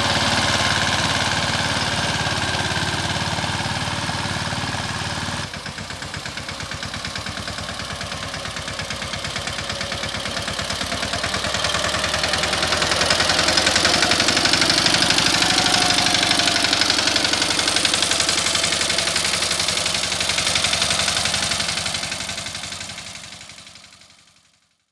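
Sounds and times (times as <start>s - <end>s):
tractor engine chugging: 0.0s - 24.6s.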